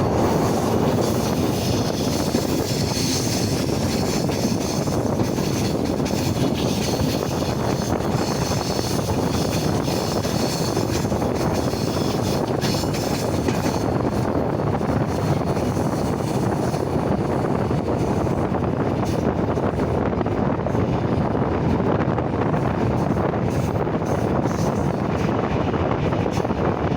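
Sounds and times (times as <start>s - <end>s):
train rumbling on rails: 0.0s - 26.9s.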